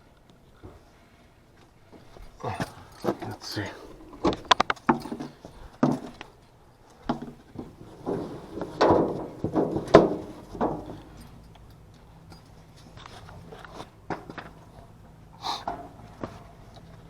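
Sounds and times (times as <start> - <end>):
tools knocking and scraping on metal unit: 7.0 - 11.7.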